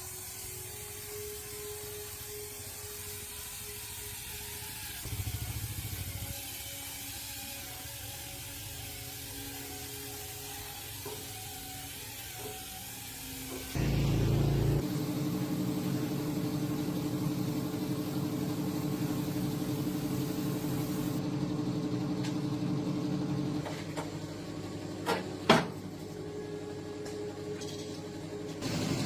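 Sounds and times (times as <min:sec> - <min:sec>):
old tractor engine running: 0:05.0 - 0:06.3, 0:13.8 - 0:14.8.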